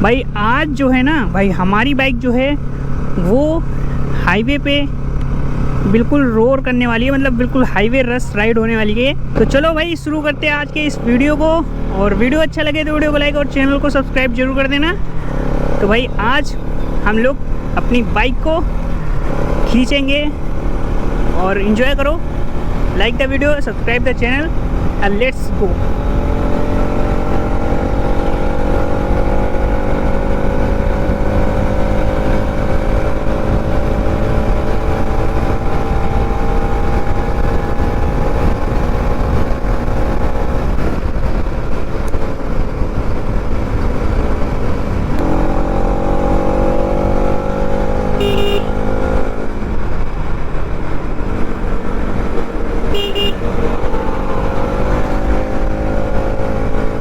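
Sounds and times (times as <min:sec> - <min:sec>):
motorcycle engine accelerating: 0:00.0 - 0:57.0
horn toots: 0:48.1 - 0:49.2, 0:52.9 - 0:54.4.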